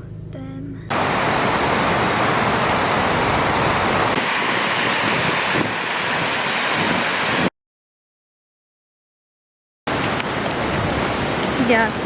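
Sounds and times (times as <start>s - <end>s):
rushing outdoor noise: 0.9s - 7.5s, 9.9s - 12.0s
wind buffeting microphone: 0.9s - 7.5s, 9.9s - 12.0s.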